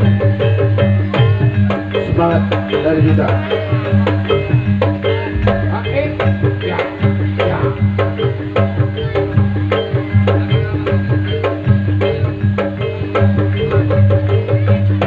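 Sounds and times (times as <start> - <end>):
gong-chimes and metallophones: 0.0 - 15.0
drum strokes: 4.4 - 8.2
low sustained tones: 5.1 - 8.0.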